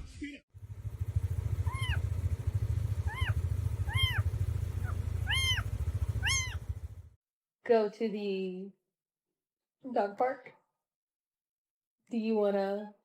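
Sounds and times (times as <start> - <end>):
low pulsing rumble: 0.6 - 7.2
animal meowing calls: 1.6 - 2.2, 3.0 - 6.7.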